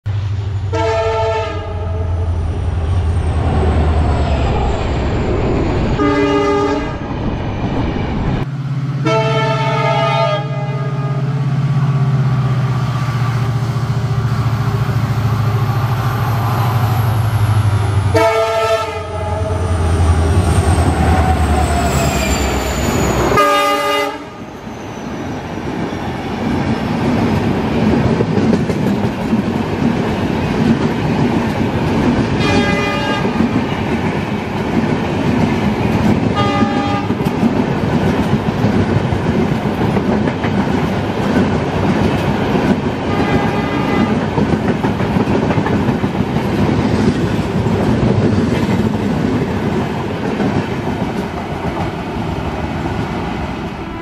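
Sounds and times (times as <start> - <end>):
locomotive horn: 0.7 - 2.3, 6.0 - 7.0, 9.0 - 11.3, 18.0 - 19.8, 23.3 - 24.5, 32.4 - 33.5, 36.4 - 37.2, 43.1 - 44.3
train wheels clattering on rails: 25.7 - 53.8.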